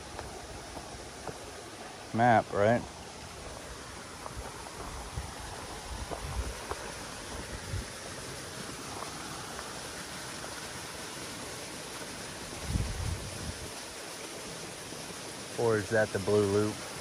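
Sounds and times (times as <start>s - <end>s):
rushing outdoor background noise: 0.0s - 17.0s.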